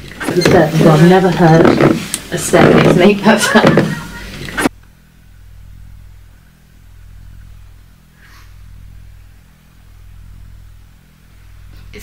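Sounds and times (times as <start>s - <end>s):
low pulsing hum: 0.0s - 12.0s.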